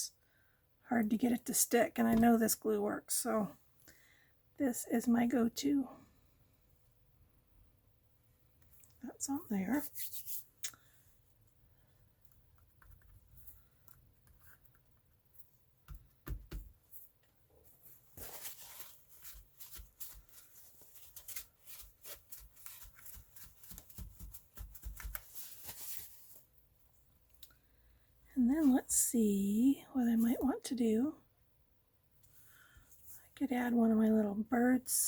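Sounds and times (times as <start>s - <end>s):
paper rustling and sliding: 17.8s - 26.5s.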